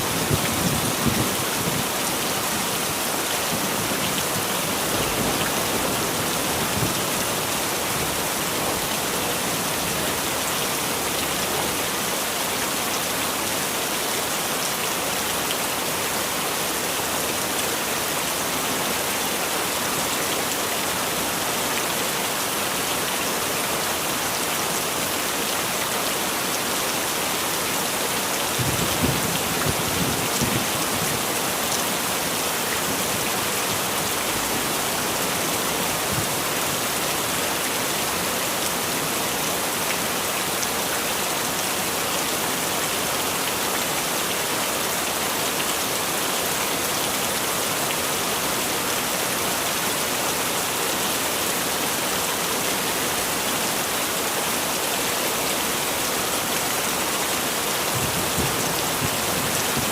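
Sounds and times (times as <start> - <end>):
heavy rain: 0.0 - 59.9
low rumble of thunder: 28.6 - 31.2.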